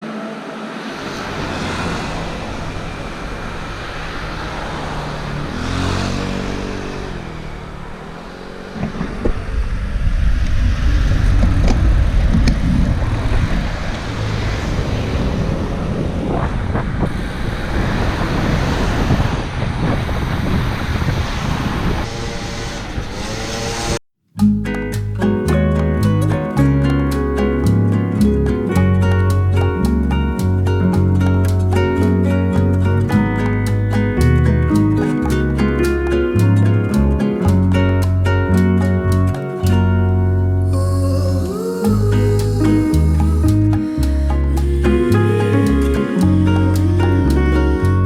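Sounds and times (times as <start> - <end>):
vehicle engine running: 1.0 - 16.0, 24.4 - 48.0
wind buffeting on microphone: 8.7 - 23.2.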